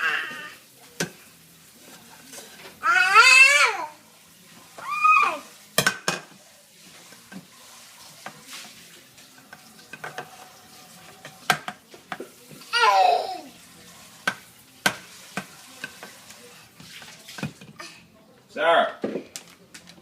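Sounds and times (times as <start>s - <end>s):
dishes and cutlery clinking: 0.3s - 2.8s, 5.7s - 12.7s, 13.6s - 18.0s.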